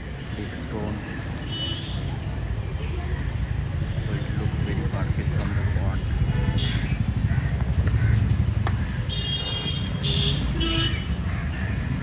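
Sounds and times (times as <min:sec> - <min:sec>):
road traffic rumble: 0:00.0 - 0:12.0
vehicle horn toots: 0:09.1 - 0:11.2.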